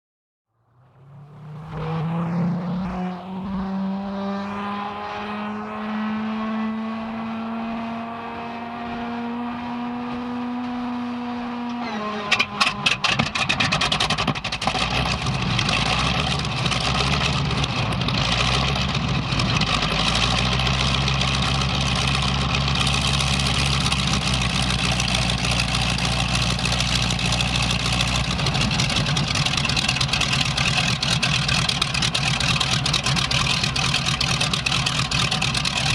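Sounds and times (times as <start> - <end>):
aircraft engine starting and idling: 11.7 - 35.9.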